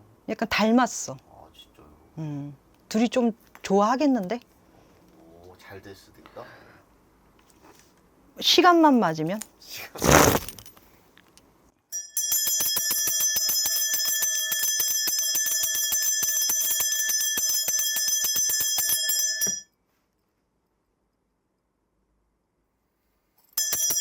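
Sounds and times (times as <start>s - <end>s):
metal bells jangling: 12.0s - 19.6s, 23.5s - 24.0s.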